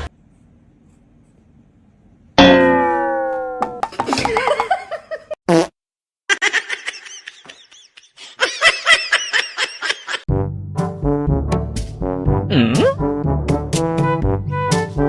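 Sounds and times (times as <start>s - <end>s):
falling tone: 2.4s - 4.6s
high-pitched laughter: 6.3s - 10.2s.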